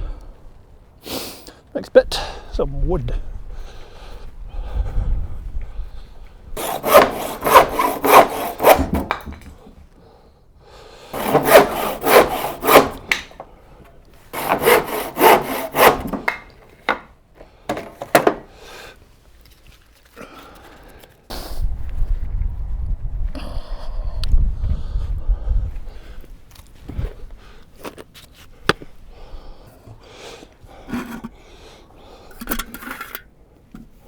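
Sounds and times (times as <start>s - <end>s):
hand saw cutting wood: 6.6s - 9.4s, 11.2s - 13.4s, 14.3s - 17.1s.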